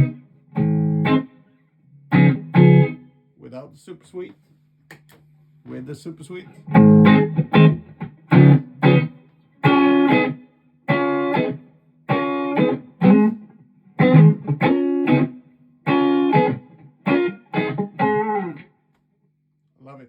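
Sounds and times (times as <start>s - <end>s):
electric guitar chord stabs: 0.0s - 3.1s, 6.6s - 18.7s.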